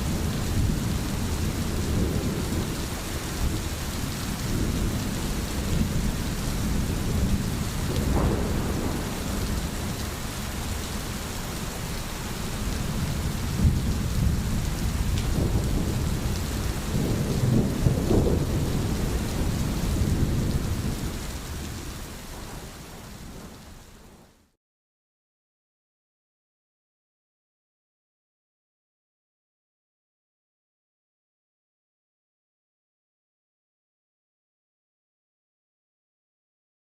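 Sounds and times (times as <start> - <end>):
low rolling thunder: 0.0 - 24.2
heavy rain: 0.0 - 24.6.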